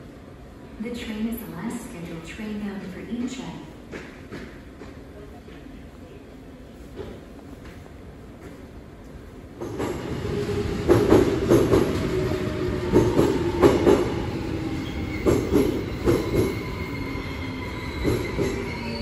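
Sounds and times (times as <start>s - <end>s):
train rumble with whine: 0.0s - 19.0s
train wheels clacking on rail joints: 3.9s - 5.7s, 10.8s - 12.1s, 15.2s - 16.5s.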